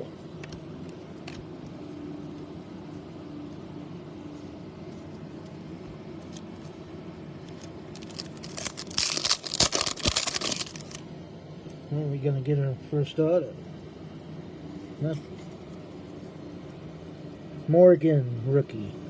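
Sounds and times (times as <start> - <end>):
low background hum: 0.0 - 19.0
cards crinkling and rustling: 4.8 - 6.8, 7.4 - 11.0.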